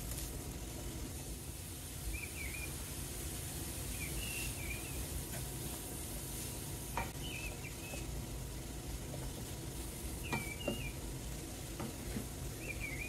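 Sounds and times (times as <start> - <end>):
bird chirping: 2.1 - 2.8, 3.9 - 5.0, 7.2 - 8.1, 10.2 - 11.0, 12.6 - 13.0.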